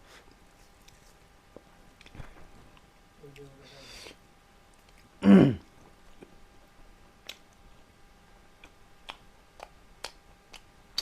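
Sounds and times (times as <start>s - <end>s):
close-miked eating clicks: 4.7s - 5.1s, 7.2s - 7.7s, 8.5s - 11.0s.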